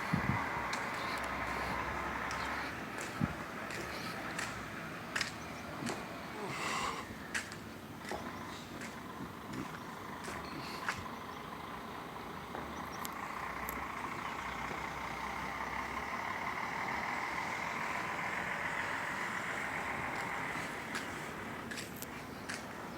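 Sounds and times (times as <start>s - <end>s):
vehicle passing: 0.0s - 22.9s
faint clicks: 13.0s - 13.8s.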